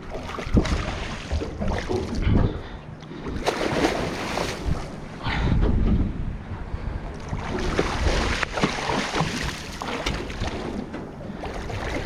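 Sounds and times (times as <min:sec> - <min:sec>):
water sloshing around boat: 0:00.0 - 0:12.0
wind buffeting microphone: 0:00.0 - 0:12.0.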